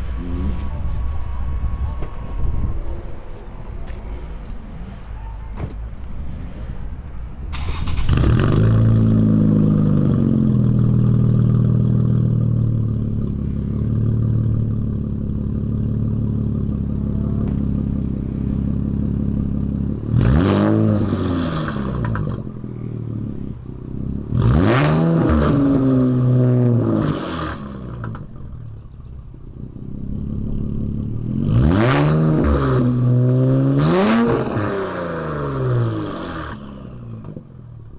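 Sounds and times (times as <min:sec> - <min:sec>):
car exhaust revving: 0:07.5 - 0:28.9, 0:29.5 - 0:37.9.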